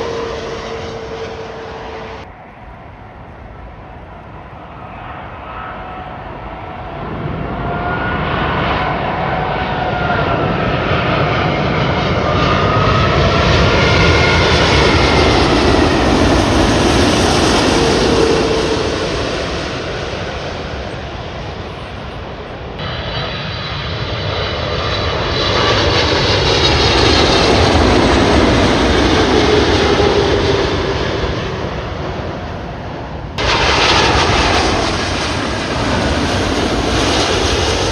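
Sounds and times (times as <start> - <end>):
jet airliner passing overhead: 0.0 - 37.9.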